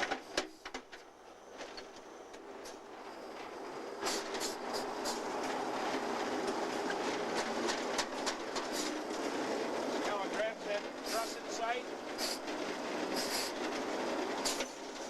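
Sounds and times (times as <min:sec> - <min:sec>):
train rumbling on rails: 0:00.0 - 0:15.0
wheels clicking and clanking: 0:00.0 - 0:15.0.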